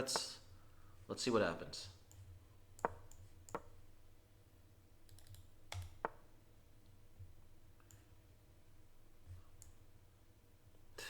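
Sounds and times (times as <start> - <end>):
faint steady hum: 0.0 - 11.0
computer mouse clicks: 2.1 - 3.8, 5.1 - 6.3.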